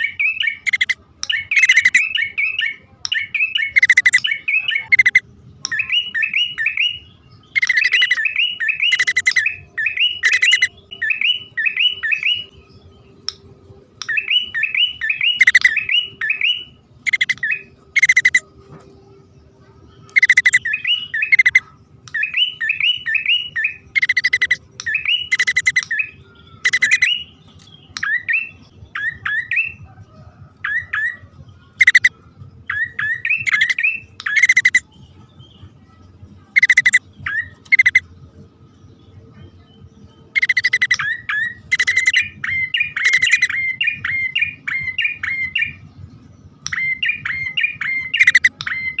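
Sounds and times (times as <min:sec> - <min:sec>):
bird harsh buzzy calls: 0:00.0 - 0:12.5, 0:14.2 - 0:18.4, 0:20.0 - 0:27.3, 0:31.8 - 0:32.1, 0:32.7 - 0:34.8, 0:36.6 - 0:38.0, 0:40.3 - 0:45.8, 0:46.7 - 0:49.0
bird quick rising chirps: 0:03.3 - 0:12.5, 0:14.1 - 0:18.4, 0:20.1 - 0:27.3.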